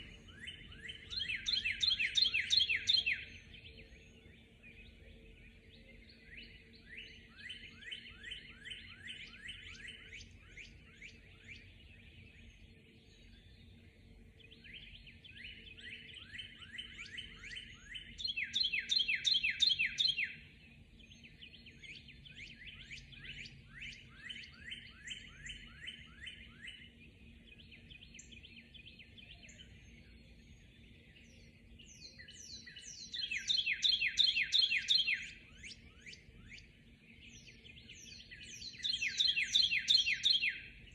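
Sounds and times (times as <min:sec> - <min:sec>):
faint low hum: 0:00.0 - 0:18.3
birds singing rapid trills: 0:00.0 - 0:40.9.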